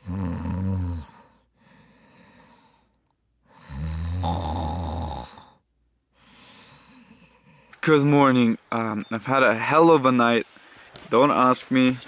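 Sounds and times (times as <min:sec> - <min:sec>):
person snoring: 0:00.0 - 0:01.4, 0:03.6 - 0:05.6
quiet breath out: 0:01.0 - 0:03.9, 0:05.2 - 0:07.8.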